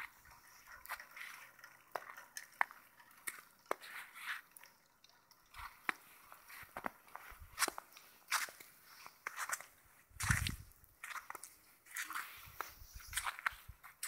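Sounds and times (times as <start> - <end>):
footsteps crunching through snow: 6.4 - 14.0.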